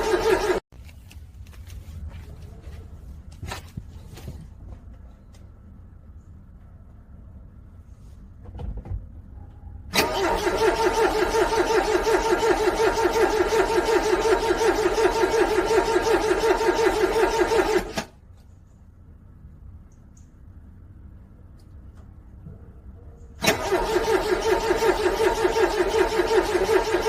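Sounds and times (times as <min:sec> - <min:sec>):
car starter cranking engine: 0:00.0 - 0:00.6, 0:09.9 - 0:18.2, 0:23.4 - 0:27.0.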